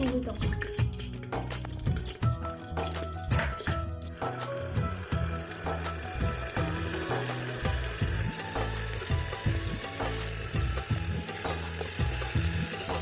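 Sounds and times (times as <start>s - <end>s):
food sizzling: 0.0s - 13.0s.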